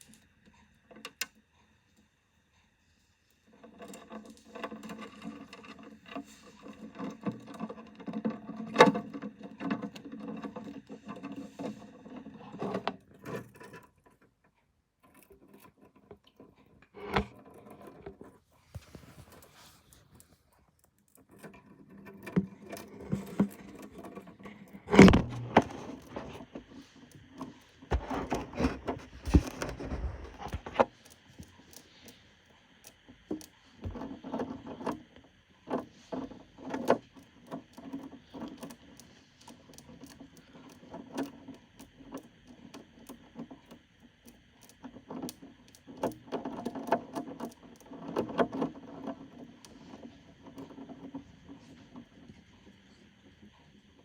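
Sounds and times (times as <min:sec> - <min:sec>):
insect crunching and scraping: 0:21.2 - 0:32.2.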